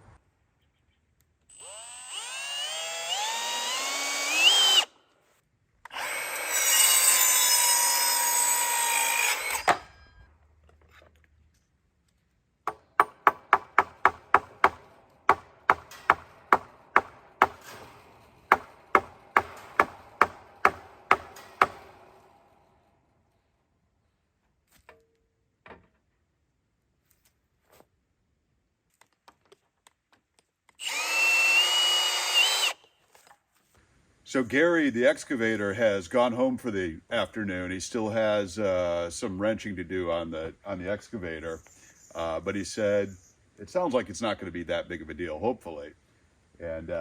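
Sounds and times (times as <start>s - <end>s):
power drill whining into wood: 1.5s - 4.9s, 5.8s - 10.2s, 30.8s - 32.9s
hammer striking wood: 12.6s - 17.9s, 18.5s - 22.0s.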